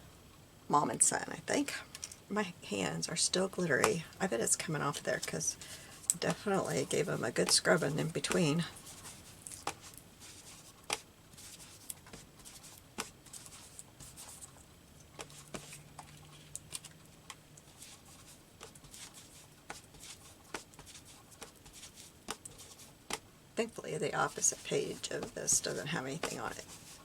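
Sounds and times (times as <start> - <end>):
paper rustling: 8.3 - 17.1.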